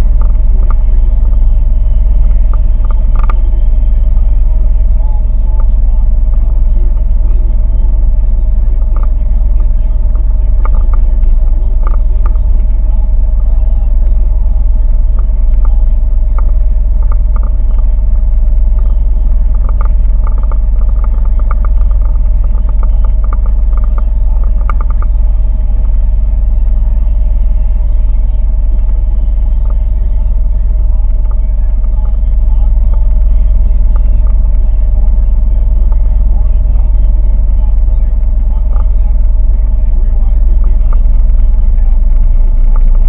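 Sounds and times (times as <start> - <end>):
boat engine running: 0.0 - 43.0
faint ticks: 15.0 - 26.0.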